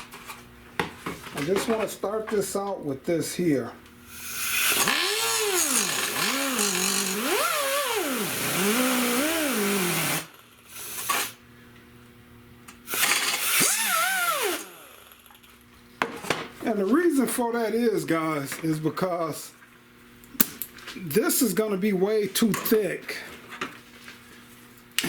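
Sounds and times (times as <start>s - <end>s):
power tool cutting plastic: 4.2s - 11.4s, 12.9s - 15.4s.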